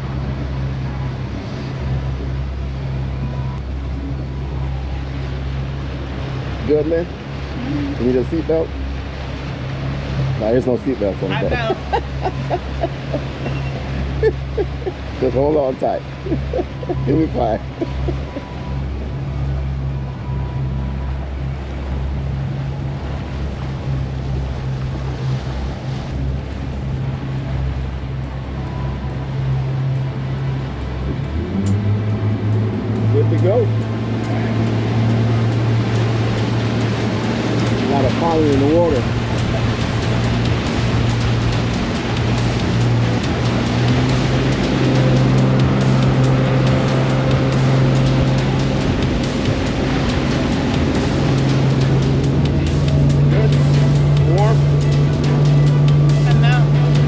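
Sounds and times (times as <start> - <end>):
motorboat engine droning: 0.0 - 57.0
wind: 0.0 - 57.0
water hissing: 31.2 - 56.2.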